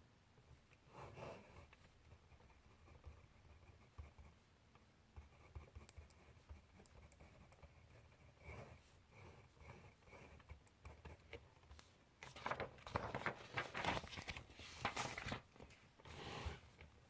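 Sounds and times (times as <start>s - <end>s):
pen scratching on paper: 0.9s - 4.4s, 5.1s - 11.4s
paper rustling and scraping: 11.8s - 16.7s.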